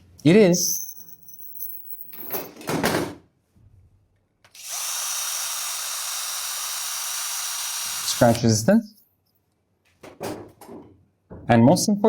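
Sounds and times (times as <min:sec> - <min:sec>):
power tool whining: 0:04.5 - 0:08.4.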